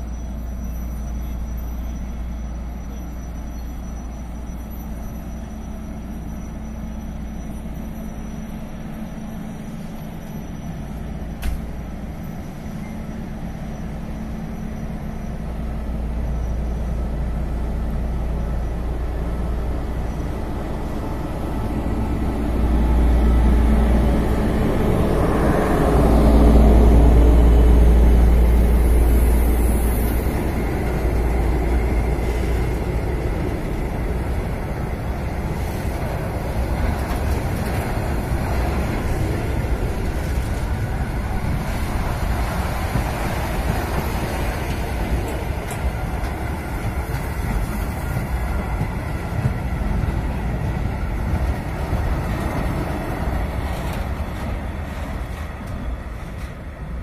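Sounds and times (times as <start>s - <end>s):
faint steady tone: 0.0s - 23.9s
diesel locomotive rumbling: 0.0s - 57.0s.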